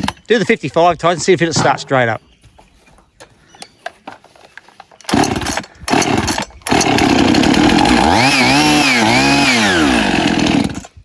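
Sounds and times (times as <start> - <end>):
chainsaw starting and revving: 5.1 - 11.0.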